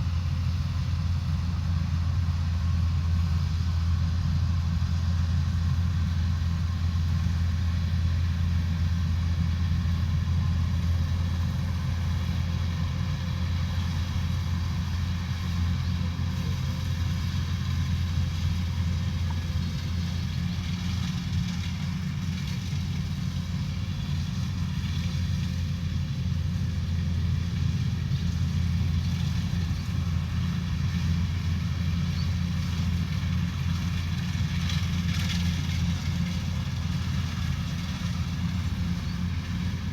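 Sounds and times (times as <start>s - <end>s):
combine harvester engine humming: 0.0s - 39.9s.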